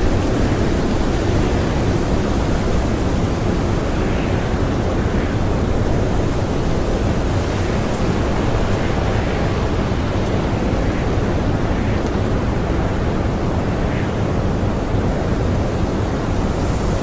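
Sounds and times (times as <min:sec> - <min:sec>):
blizzard wind rushing: 0:00.0 - 0:17.0.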